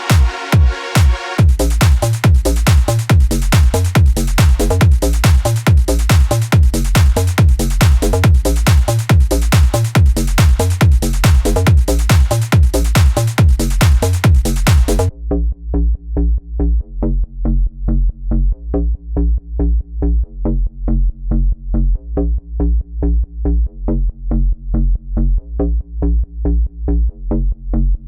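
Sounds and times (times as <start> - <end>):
bass-heavy synthesizer pulsing: 0.0 - 28.0.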